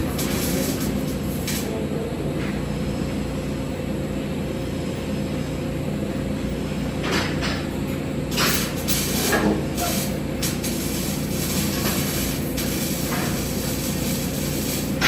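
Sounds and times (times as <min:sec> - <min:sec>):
welding arc crackles: 0:00.0 - 0:01.7, 0:08.3 - 0:15.0
welding arc hissing and humming: 0:00.0 - 0:02.0, 0:02.6 - 0:15.0.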